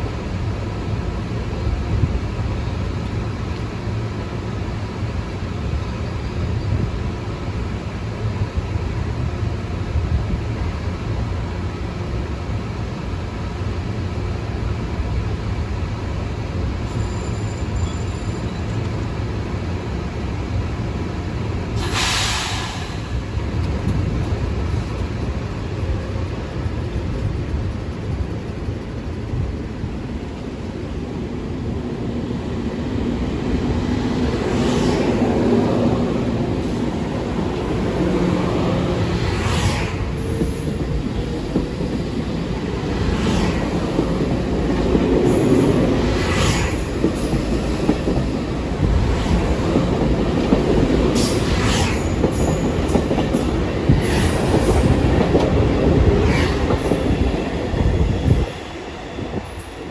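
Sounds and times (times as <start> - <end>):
train rumbling: 0.0 - 59.9
air hiss: 21.8 - 23.3.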